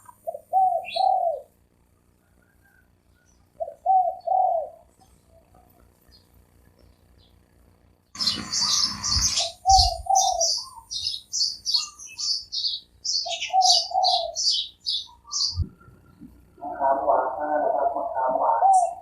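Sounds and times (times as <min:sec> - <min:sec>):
dove cooing: 0:00.0 - 0:01.6, 0:03.5 - 0:05.8, 0:08.2 - 0:19.0
small birds chirping: 0:00.0 - 0:19.0.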